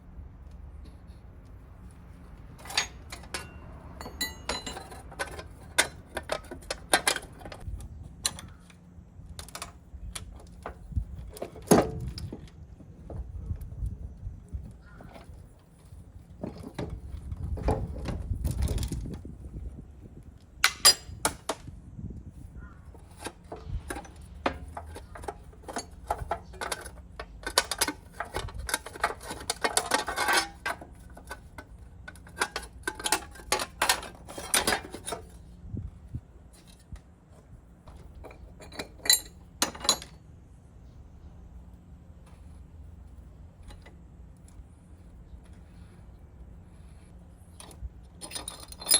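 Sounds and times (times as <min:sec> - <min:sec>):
metal tools clinking: 0:02.5 - 0:08.6, 0:20.6 - 0:21.6, 0:22.9 - 0:35.4, 0:37.9 - 0:40.2, 0:47.6 - 0:48.9.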